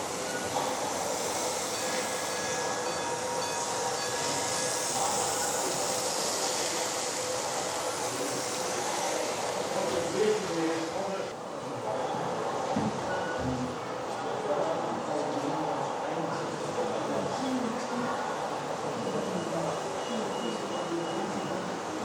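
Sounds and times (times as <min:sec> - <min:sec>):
model train rolling: 0:00.0 - 0:11.3.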